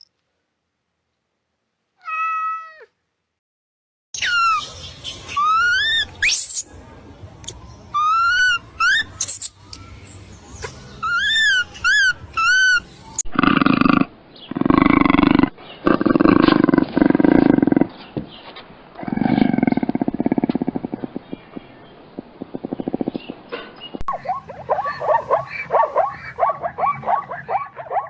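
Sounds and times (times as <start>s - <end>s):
big cat roaring and growling: 13.3s - 17.9s, 19.0s - 21.7s.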